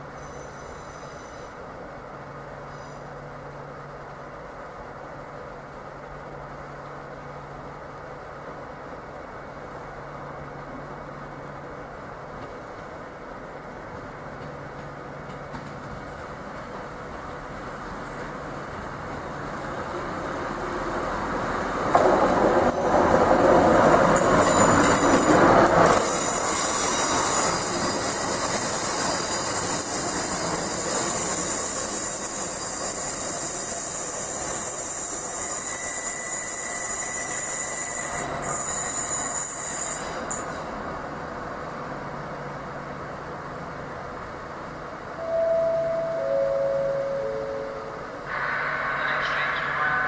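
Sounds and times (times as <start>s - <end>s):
diesel train passing: 0.0s - 50.0s
high-pitched wheel squeal: 26.1s - 40.5s, 46.6s - 50.0s.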